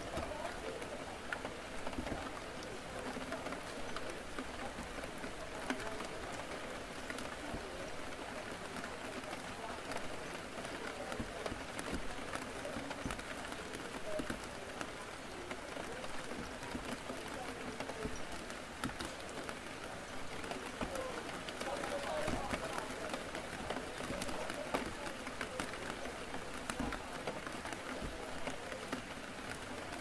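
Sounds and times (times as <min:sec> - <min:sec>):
faint indistinct chatter: 0:00.0 - 0:30.0
rain falling against a window: 0:00.0 - 0:30.0.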